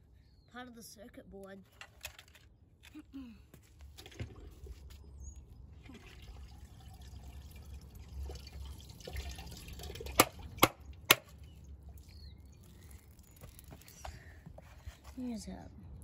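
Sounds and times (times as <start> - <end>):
low steady hum: 0.0 - 16.0
plastic handling noise: 1.6 - 5.0.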